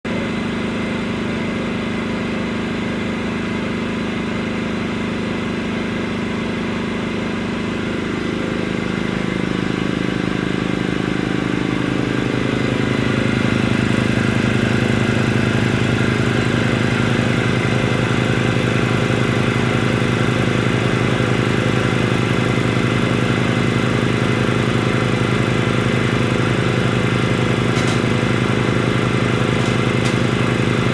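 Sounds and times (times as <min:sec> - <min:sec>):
air compressor running: 0:00.1 - 0:30.9.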